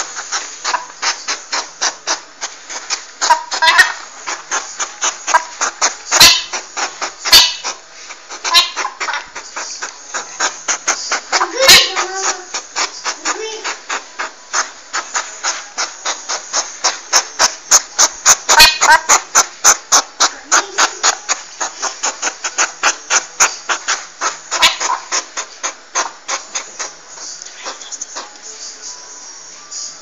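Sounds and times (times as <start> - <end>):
porcupine clicking: 0.0 - 28.6
porcupine short pitched calls: 8.4 - 9.2, 17.4 - 19.8.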